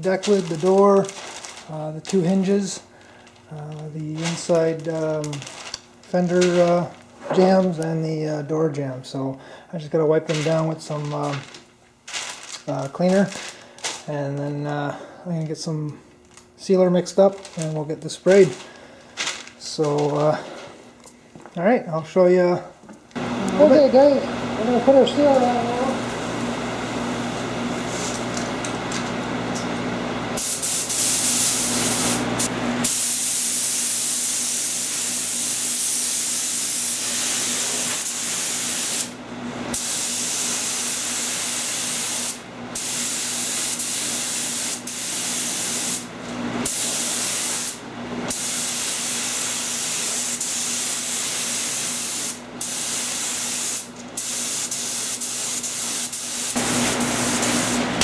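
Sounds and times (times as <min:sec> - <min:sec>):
air spray gun hissing: 0:30.4 - 0:58.0.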